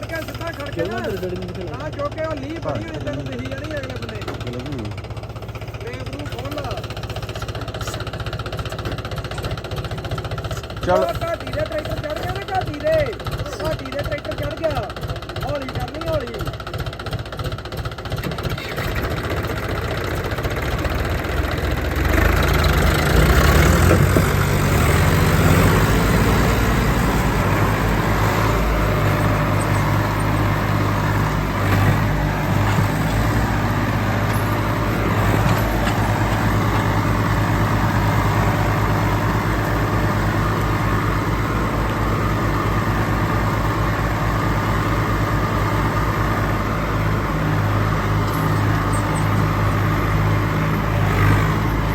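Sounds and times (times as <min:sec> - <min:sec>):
tractor diesel engine throbbing: 0:00.0 - 0:51.9.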